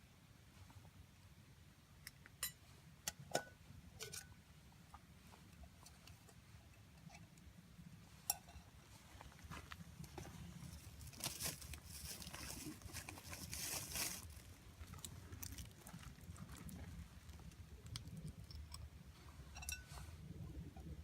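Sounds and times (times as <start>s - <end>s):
rustling: 8.9s - 17.6s
campfire crackling: 9.2s - 18.8s.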